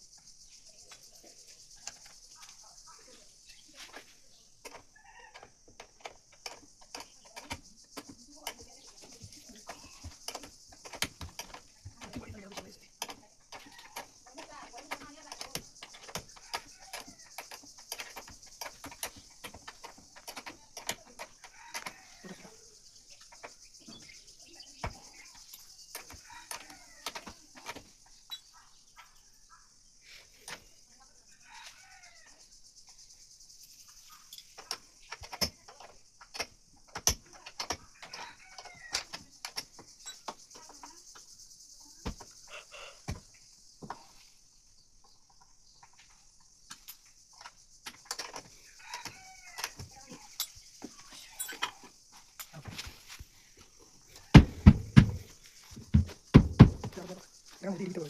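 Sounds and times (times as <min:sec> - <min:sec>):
sharp clicks and knocks: 0:03.9 - 0:22.0, 0:34.3 - 0:41.2, 0:45.8 - 0:52.9.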